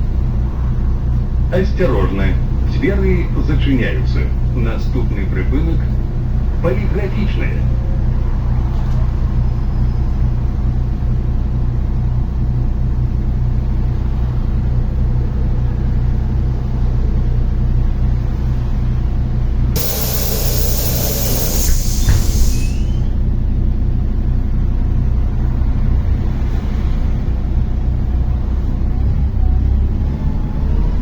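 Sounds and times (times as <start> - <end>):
bus diesel engine running: 0.0 - 26.4, 27.0 - 30.5
compressed air hiss: 19.8 - 23.1.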